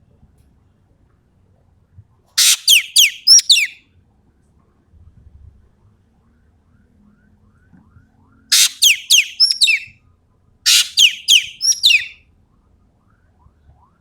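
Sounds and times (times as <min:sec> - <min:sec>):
bird calling in sharp notes: 0:02.4 - 0:03.8, 0:08.5 - 0:09.9, 0:10.7 - 0:12.2.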